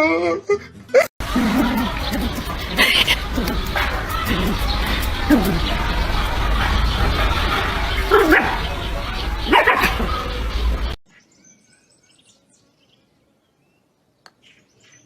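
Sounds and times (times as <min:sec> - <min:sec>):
dog barking: 0:01.2 - 0:10.8
steady background noise: 0:01.2 - 0:11.0.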